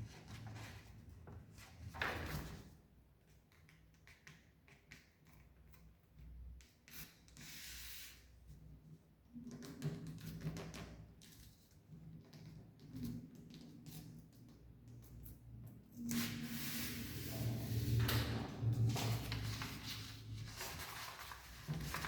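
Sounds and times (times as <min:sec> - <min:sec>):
paper rustling and folding: 0:00.0 - 0:02.7, 0:16.1 - 0:22.0.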